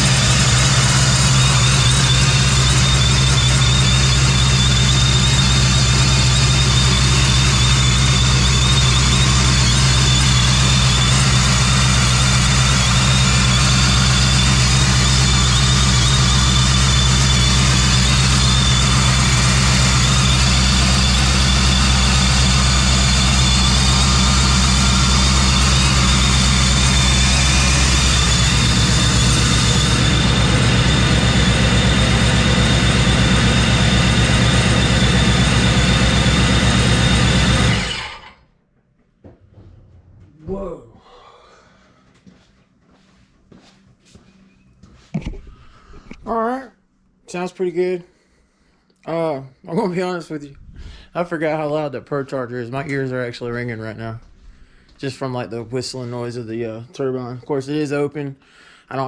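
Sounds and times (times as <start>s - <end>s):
engine idling: 0.0s - 38.4s
supercharger whine: 0.0s - 38.6s.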